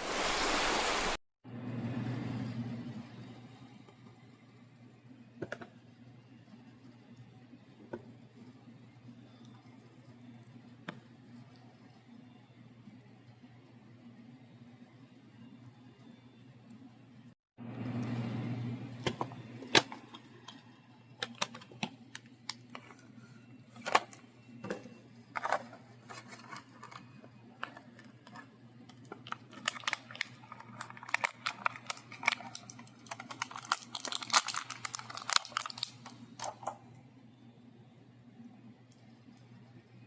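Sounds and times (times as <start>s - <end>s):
packaging crinkling and rustling: 25.3s - 36.8s.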